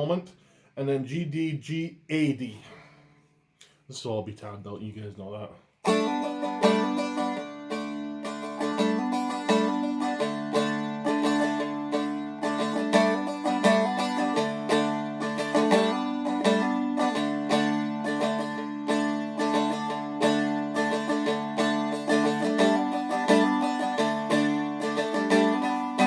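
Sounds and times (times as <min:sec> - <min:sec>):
strumstick picked melody: 0:05.8 - 0:26.0.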